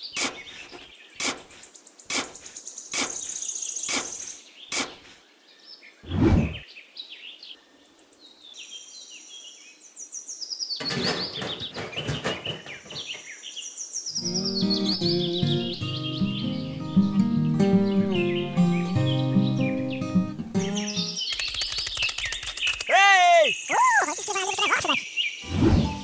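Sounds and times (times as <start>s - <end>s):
trowel scraping in sand: 0.0s - 5.2s
birds chirping: 0.0s - 26.0s.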